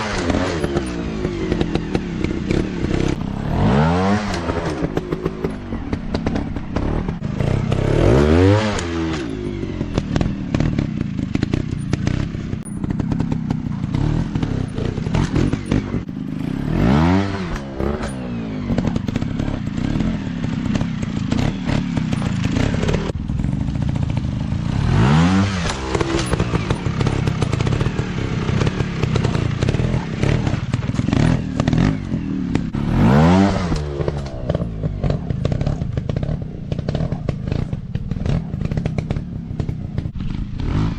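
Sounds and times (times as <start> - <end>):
knocks and clatter: 0.0 - 16.1, 25.4 - 40.9
dirt bike engines revving: 0.0 - 40.9.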